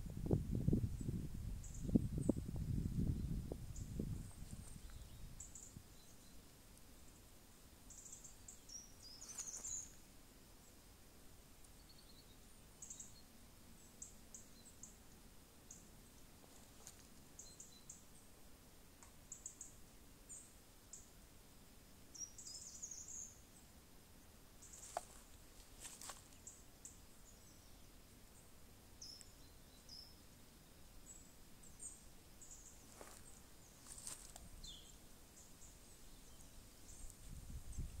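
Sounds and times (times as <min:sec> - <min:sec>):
faint high bird chirps: 0:01.0 - 0:07.2, 0:07.8 - 0:10.0, 0:11.6 - 0:15.1, 0:16.8 - 0:18.2, 0:19.3 - 0:21.2, 0:22.1 - 0:23.7, 0:25.8 - 0:38.0.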